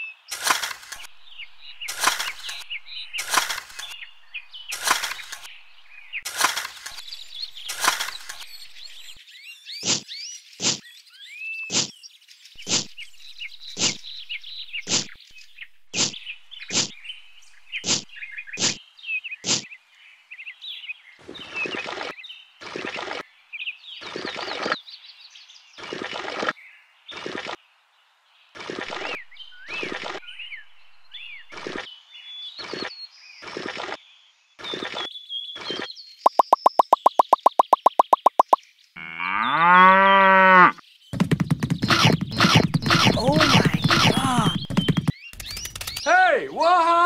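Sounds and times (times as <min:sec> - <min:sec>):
seeds popping into sand: 0:00.3 - 0:01.1, 0:01.8 - 0:04.0, 0:04.6 - 0:05.6, 0:06.2 - 0:09.2, 0:12.6 - 0:15.2, 0:36.3 - 0:38.6
birds chirping: 0:00.9 - 0:19.7, 0:28.6 - 0:33.6, 0:34.6 - 0:46.7
water splashing from cup: 0:36.3 - 0:38.6.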